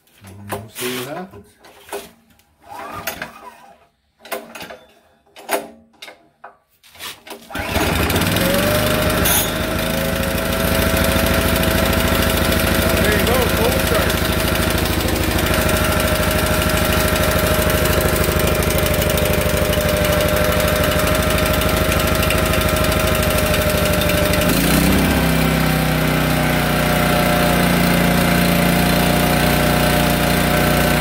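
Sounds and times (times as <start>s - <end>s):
generator engine running: 7.5s - 31.0s.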